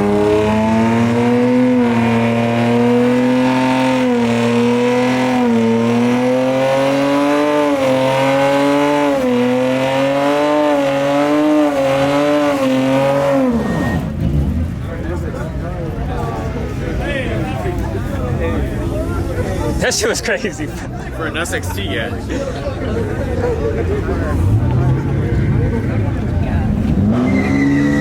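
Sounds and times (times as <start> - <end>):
car engine revving: 0.0 - 16.8, 23.7 - 28.0.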